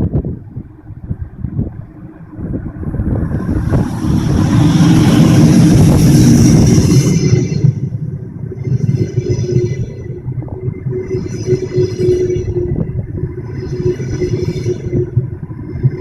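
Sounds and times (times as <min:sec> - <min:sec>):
train wheels rumbling on rail: 0:00.0 - 0:16.0
train hiss: 0:03.3 - 0:10.1
high-pitched ringing squeals: 0:03.3 - 0:16.0.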